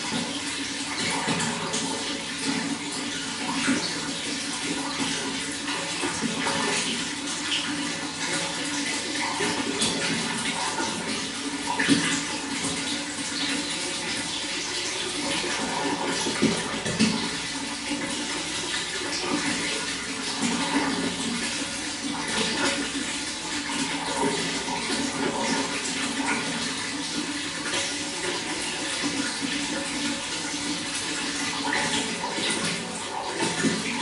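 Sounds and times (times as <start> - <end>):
running water flowing: 0.0 - 34.0.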